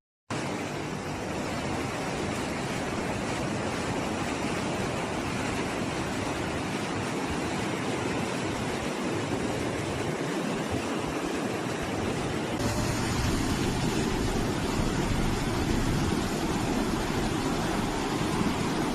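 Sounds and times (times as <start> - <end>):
floodwater rushing: 0.3 - 18.9.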